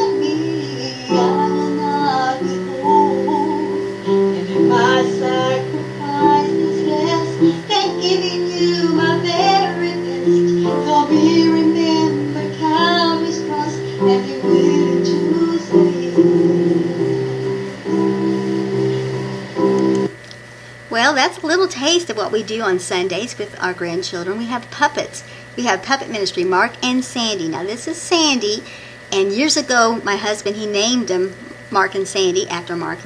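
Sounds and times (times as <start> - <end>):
high voice singing: 0.0 - 18.9
instrumental backing music: 0.0 - 20.2.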